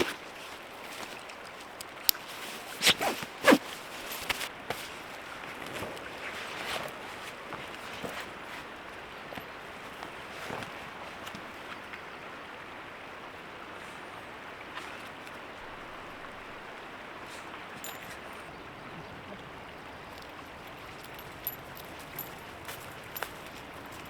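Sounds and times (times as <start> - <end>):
creek water running: 0.0 - 24.0.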